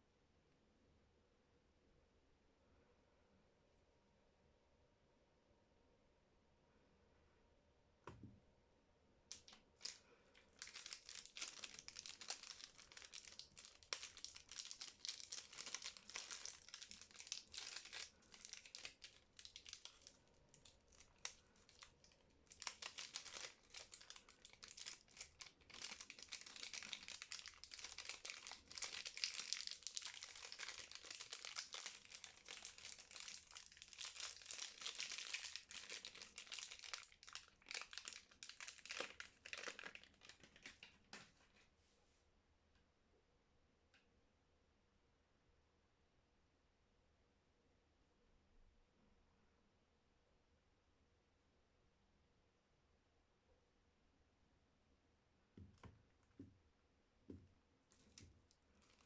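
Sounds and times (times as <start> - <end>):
wrapper crinkling: 9.3 - 41.0, 57.9 - 59.0.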